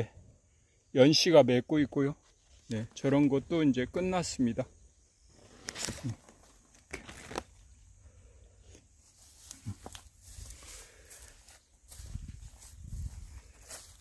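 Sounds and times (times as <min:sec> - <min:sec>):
rustling and crinkling: 0:05.3 - 0:07.8, 0:08.7 - 0:14.0.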